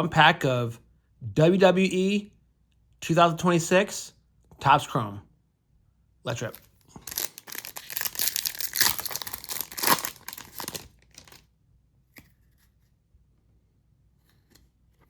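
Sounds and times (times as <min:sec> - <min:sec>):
foil wrapper tearing and crinkling: 0:06.5 - 0:11.4.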